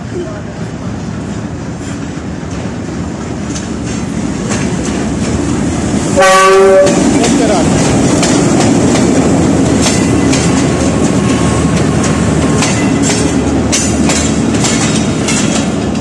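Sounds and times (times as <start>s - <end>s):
train wheels rumbling on rail: 0.0s - 16.0s
wheels clacking over rail joints: 1.8s - 16.0s.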